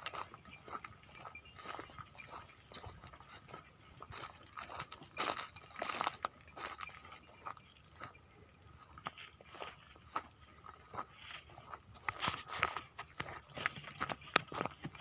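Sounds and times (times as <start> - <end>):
crunching dry fodder: 0.0 - 8.2.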